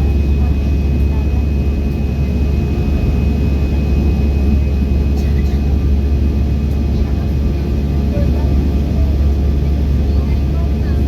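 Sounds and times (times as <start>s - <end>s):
airplane cabin roar: 0.0s - 11.0s.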